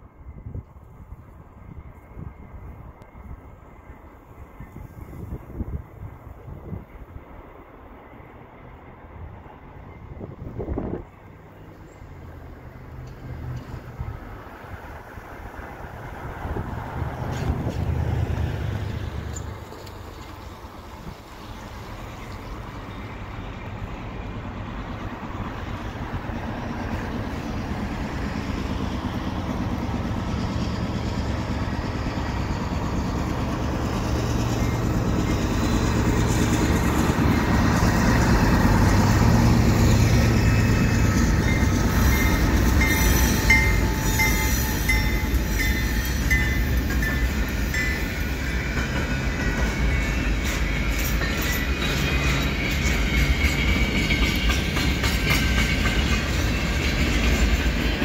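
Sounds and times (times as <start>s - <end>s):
locomotive engines droning: 0.0s - 58.0s
high-pitched wheel squeals: 40.3s - 54.7s.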